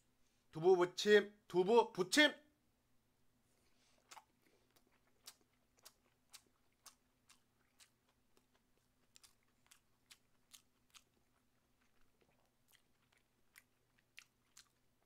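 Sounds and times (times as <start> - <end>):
faint chewing mouth clicks: 3.6 - 15.0.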